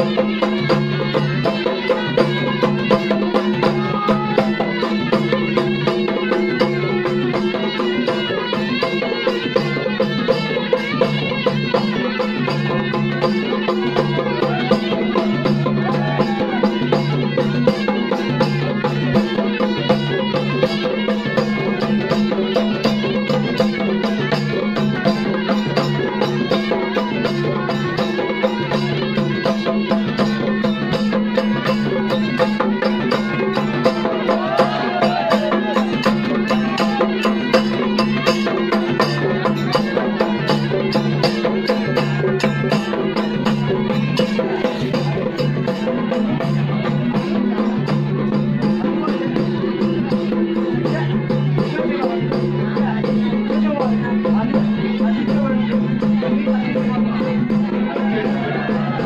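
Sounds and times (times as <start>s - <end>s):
fast drumming: 0.0s - 59.0s.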